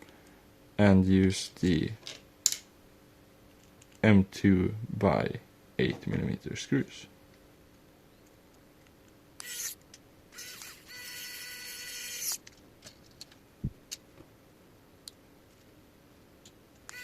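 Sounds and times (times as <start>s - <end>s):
electric screwdriver whirring: 9.4s - 9.8s, 10.4s - 12.4s.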